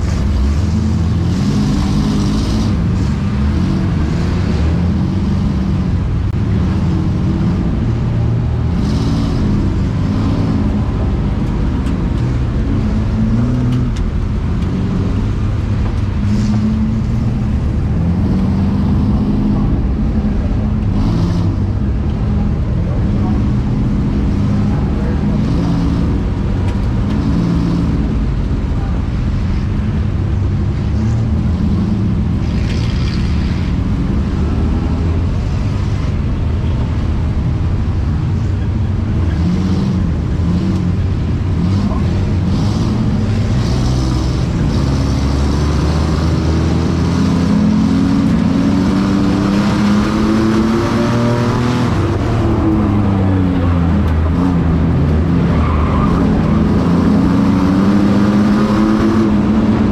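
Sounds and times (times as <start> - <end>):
racing truck engines: 0.0 - 59.9.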